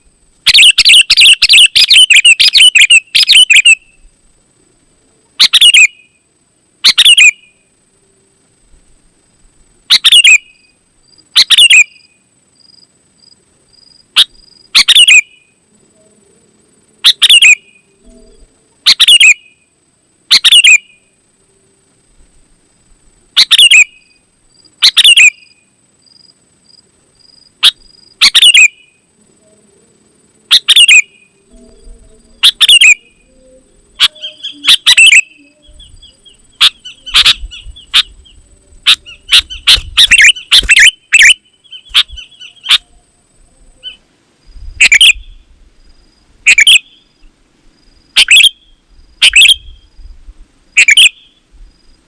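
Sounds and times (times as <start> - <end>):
bulbul singing: 0.0 - 4.1, 6.8 - 7.7, 9.9 - 10.8, 17.0 - 19.7, 20.3 - 21.2, 27.6 - 29.7, 30.4 - 44.0.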